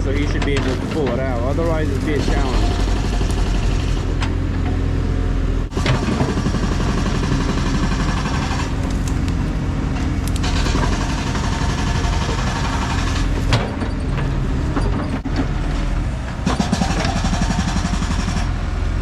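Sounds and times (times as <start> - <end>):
excavator diesel engine running: 0.0 - 19.0
wood knocking and cracking: 5.7 - 14.8.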